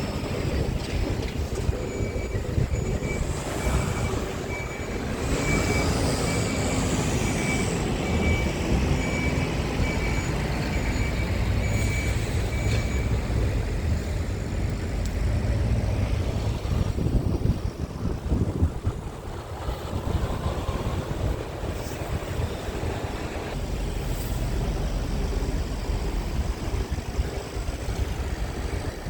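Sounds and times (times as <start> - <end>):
diesel truck engine running: 0.0 - 29.0.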